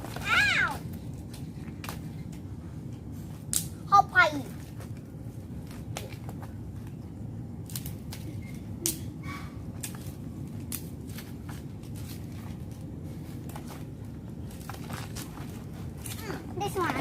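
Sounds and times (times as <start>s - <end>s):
sticks snapping and crackling: 0.0s - 2.4s, 3.3s - 3.8s, 4.6s - 7.0s, 7.6s - 16.3s
steady low rumble: 0.0s - 17.0s.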